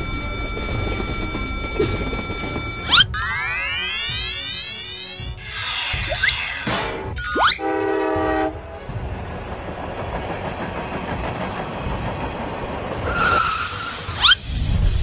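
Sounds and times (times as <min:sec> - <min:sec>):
train rumbling: 0:00.0 - 0:03.4, 0:07.0 - 0:15.0
train horn chord: 0:07.6 - 0:09.1
hiss: 0:13.2 - 0:15.0.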